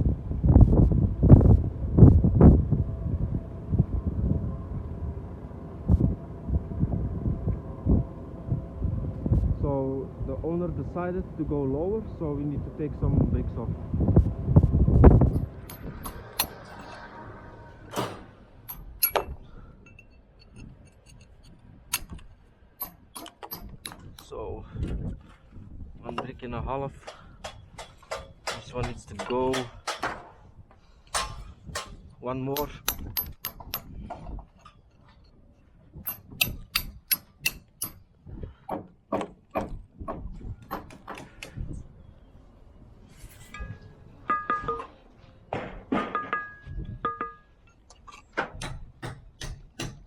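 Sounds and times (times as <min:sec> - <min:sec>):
hammer striking brick wall: 0:15.3 - 0:16.7, 0:22.8 - 0:24.3, 0:27.1 - 0:30.4, 0:31.1 - 0:31.9, 0:32.6 - 0:33.9, 0:36.0 - 0:38.0, 0:48.4 - 0:50.0
masonry and tools clinking: 0:15.3 - 0:17.0, 0:18.7 - 0:24.4, 0:32.5 - 0:35.4, 0:36.0 - 0:38.0, 0:43.4 - 0:45.0, 0:46.0 - 0:48.8.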